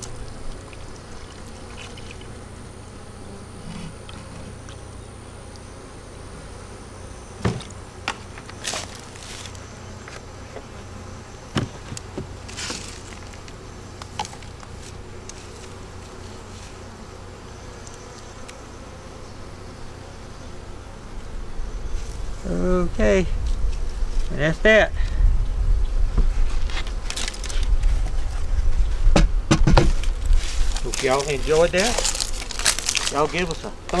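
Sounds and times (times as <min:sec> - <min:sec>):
honey bees buzzing: 0:00.0 - 0:34.0
brief rustling: 0:26.2 - 0:34.0
sharp knocks: 0:29.1 - 0:30.2.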